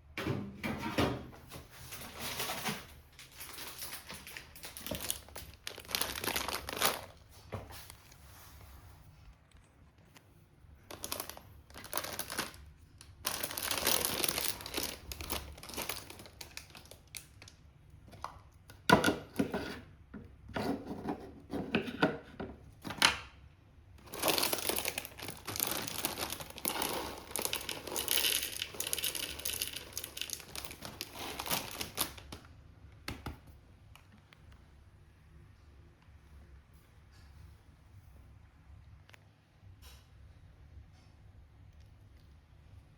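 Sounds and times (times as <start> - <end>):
rustling and crinkling: 1.3 - 20.0, 24.0 - 32.6.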